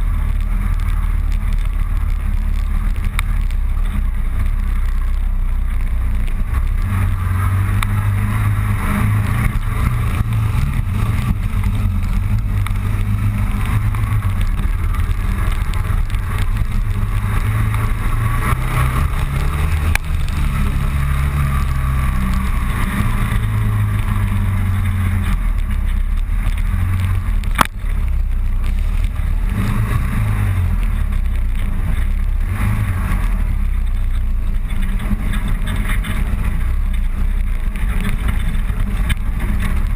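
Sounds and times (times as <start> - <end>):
motorcycle engine droning: 0.0 - 39.9
rush of noise: 0.0 - 39.9
sharp click: 27.5 - 27.8.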